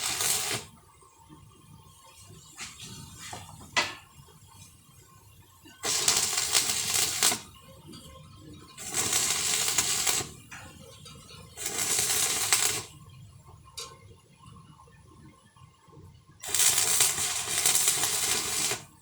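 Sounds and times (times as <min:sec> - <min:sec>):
electric arc welding: 0:00.0 - 0:00.7, 0:05.8 - 0:07.6, 0:08.8 - 0:10.9, 0:11.5 - 0:13.0, 0:16.4 - 0:19.0.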